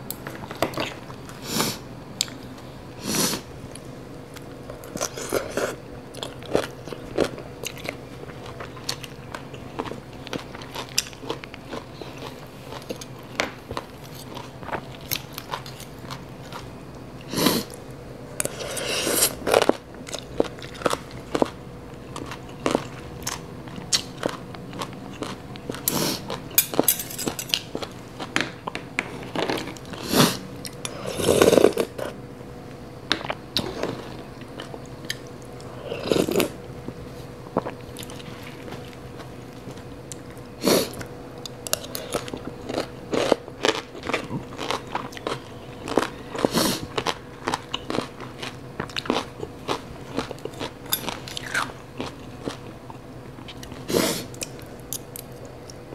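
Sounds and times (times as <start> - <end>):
crunchy chewing: 3.3 - 17.8, 18.4 - 32.2, 33.2 - 55.9
cutlery clicking on trays: 26.6 - 27.7.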